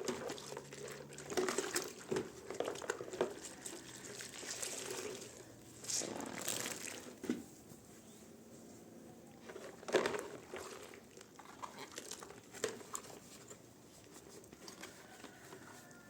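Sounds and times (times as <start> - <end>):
rustling: 11.6 - 16.0.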